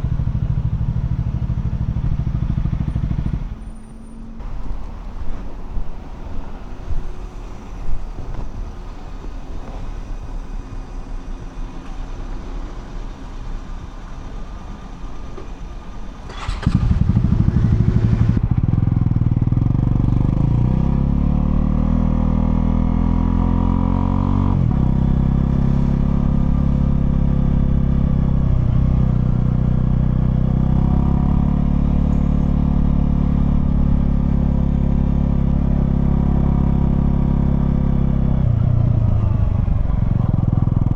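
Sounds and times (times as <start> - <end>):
motorcycle engine revving: 0.0 - 9.8, 16.2 - 40.9.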